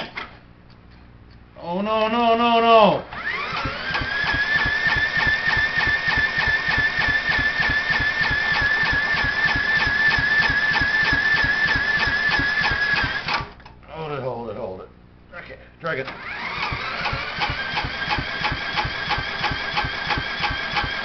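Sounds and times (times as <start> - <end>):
electric drill whining: 3.1 - 13.6, 16.1 - 21.0
engine compression chugging: 3.2 - 13.5, 16.1 - 21.0.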